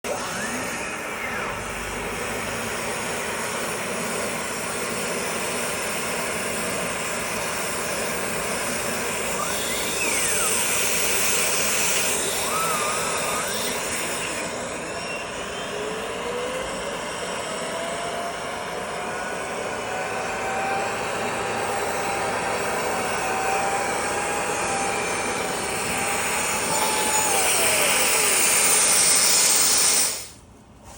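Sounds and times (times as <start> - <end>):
whistling glides: 0.1 - 2.6, 8.6 - 30.4
rush of air from vent cleaner: 1.9 - 14.8, 19.3 - 30.9.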